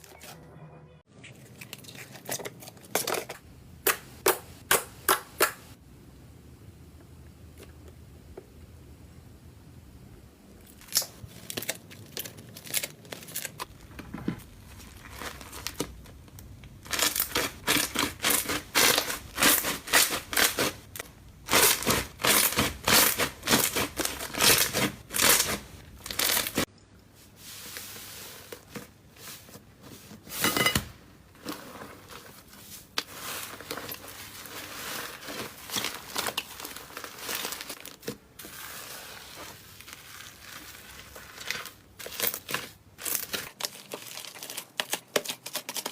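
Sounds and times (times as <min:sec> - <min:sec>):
slime crackling and popping: 0:14.5 - 0:26.7.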